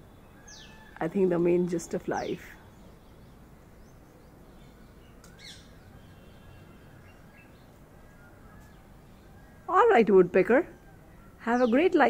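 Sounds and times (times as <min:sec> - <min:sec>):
soft bird chirps: 0:02.1 - 0:09.7.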